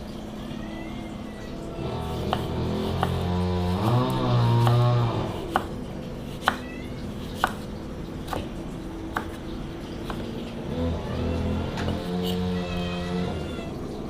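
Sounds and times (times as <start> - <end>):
knife chopping on cutting board: 2.1 - 6.6, 7.4 - 7.7.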